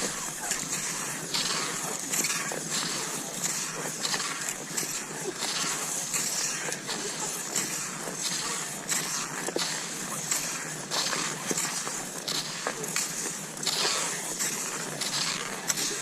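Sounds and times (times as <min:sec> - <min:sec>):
ski crunch in snow: 0:00.0 - 0:16.0
skis gliding over snow: 0:00.0 - 0:16.0.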